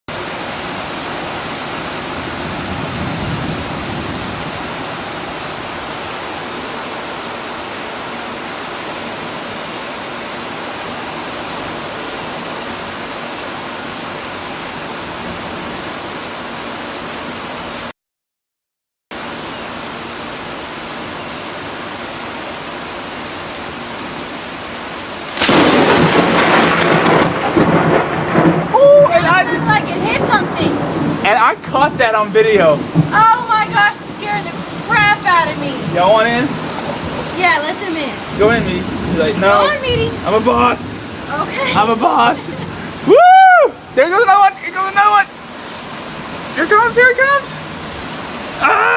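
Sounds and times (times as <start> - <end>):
steady rain falling: 0.1 - 17.9, 19.1 - 48.9
loud thunder crash: 2.4 - 4.5, 25.3 - 33.2.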